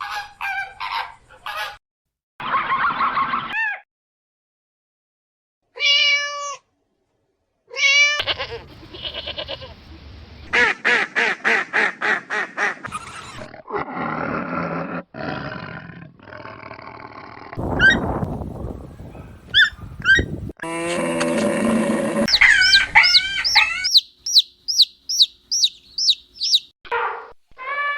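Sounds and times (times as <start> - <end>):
rough noisy animal calls: 21.0 - 26.7
quick pulsed animal calls: 22.3 - 26.7
short rising chirps: 22.3 - 26.7.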